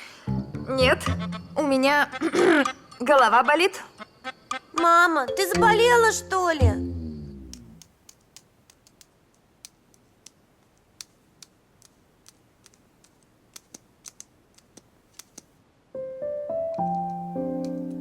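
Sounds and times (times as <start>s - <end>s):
typing on a keyboard: 8.1s - 15.5s, 16.8s - 18.0s.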